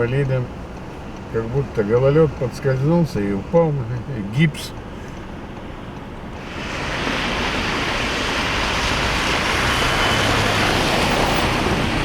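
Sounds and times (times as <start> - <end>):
low engine hum: 0.0 - 12.0
car tyres hissing through slush: 6.3 - 12.0.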